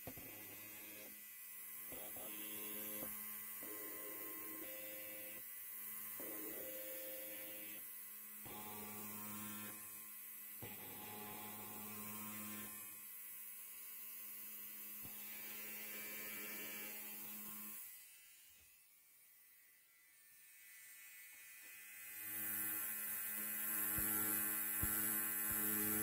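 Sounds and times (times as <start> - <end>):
electric hair clipper buzzing: 0.0 - 26.0.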